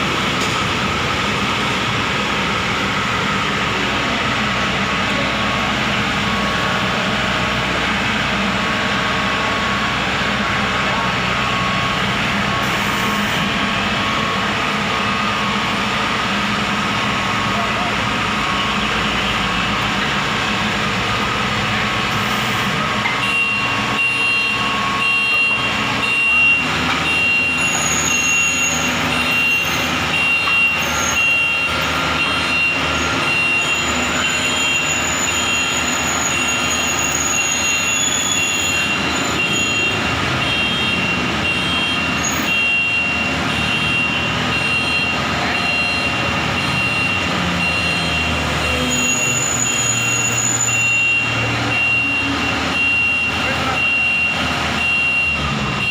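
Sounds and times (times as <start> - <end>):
combine harvester engine running: 0.0 - 55.9.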